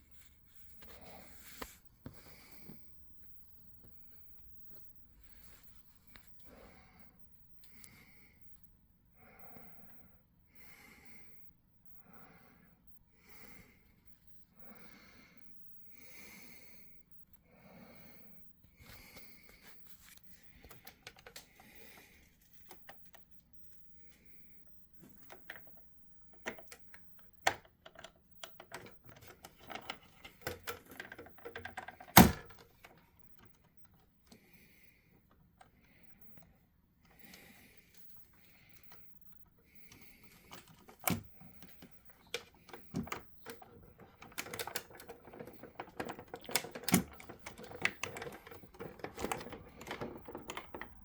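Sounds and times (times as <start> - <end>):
soft puffs: 0.0 - 2.9
plastic model truck clicks and knocks: 27.5 - 32.6, 42.4 - 51.0.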